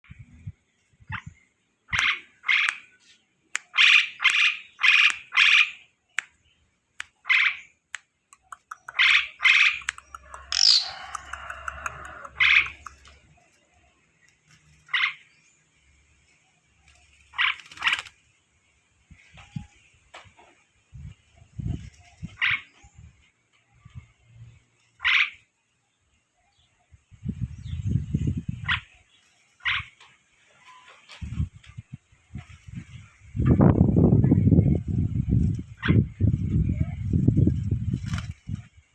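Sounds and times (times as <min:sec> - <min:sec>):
starling harsh calls: 0:01.9 - 0:02.9, 0:08.8 - 0:13.9, 0:14.6 - 0:15.4, 0:16.9 - 0:18.2, 0:24.8 - 0:25.5, 0:28.6 - 0:31.2
starling singing: 0:08.4 - 0:15.6.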